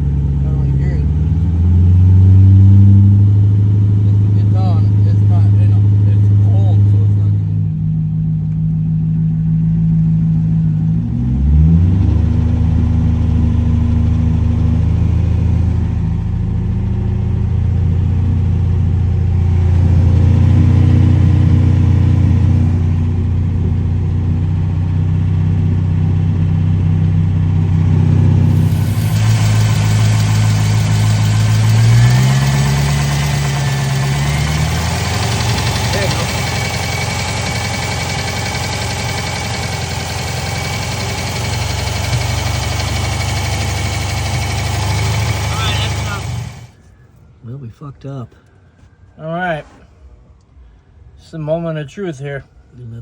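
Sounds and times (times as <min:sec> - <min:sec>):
engine idling: 0:00.0 - 0:02.1, 0:12.4 - 0:46.9.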